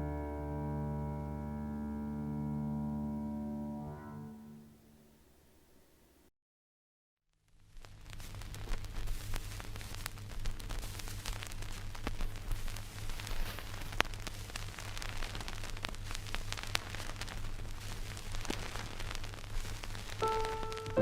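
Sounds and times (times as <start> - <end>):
hiss and crackle: 7.4 - 21.0.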